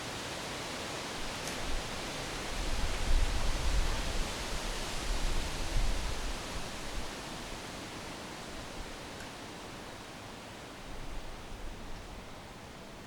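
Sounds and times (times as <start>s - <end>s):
wind rustling trees: 0.0s - 13.0s
wind rumble on microphone: 1.6s - 7.6s.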